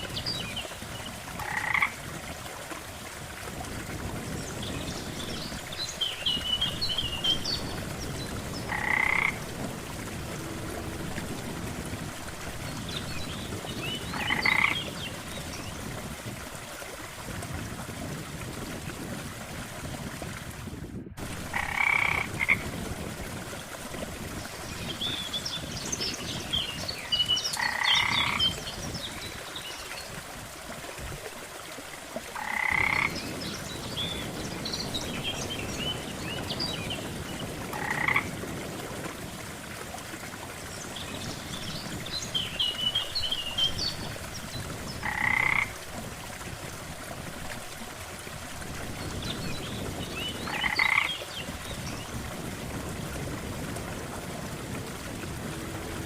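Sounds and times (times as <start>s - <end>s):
low rush of water: 0.0s - 56.0s
frogs croaking: 1.4s - 2.0s, 6.6s - 15.2s, 21.3s - 22.7s, 27.5s - 28.5s, 32.4s - 34.4s, 37.0s - 38.4s, 45.0s - 45.8s, 50.4s - 51.2s.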